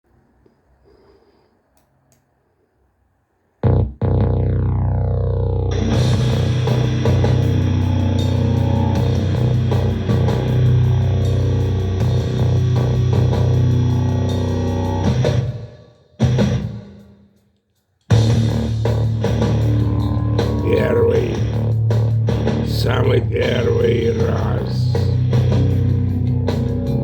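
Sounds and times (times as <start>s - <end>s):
instrumental rock music: 3.6s - 15.6s, 16.2s - 16.8s, 18.1s - 27.0s.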